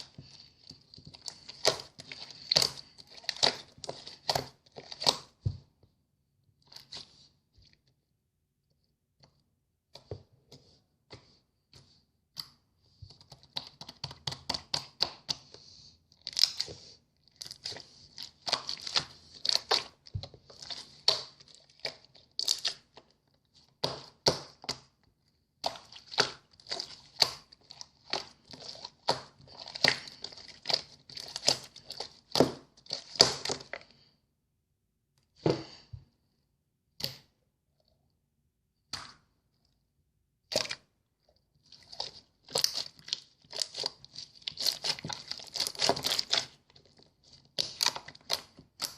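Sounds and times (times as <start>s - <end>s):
slime squished by hand: 0.0s - 5.4s, 17.3s - 25.0s, 25.6s - 34.0s, 41.7s - 48.9s.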